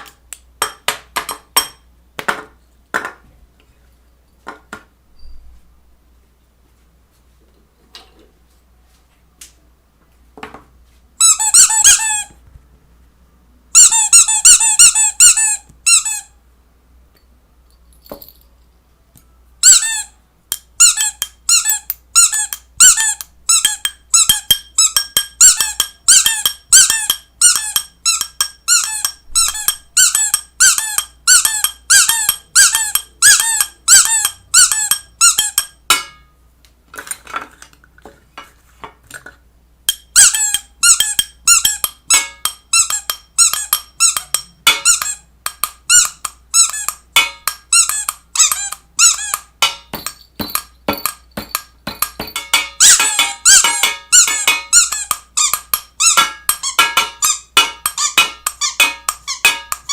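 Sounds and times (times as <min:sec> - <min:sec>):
short high squeaks: 0:52.8 - 0:59.9.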